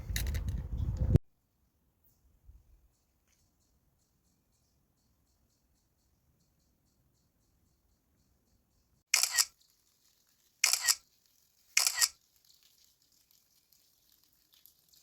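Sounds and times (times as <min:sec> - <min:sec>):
camera shutter clicks: 0:09.2 - 0:09.5, 0:10.6 - 0:11.0, 0:11.8 - 0:12.2.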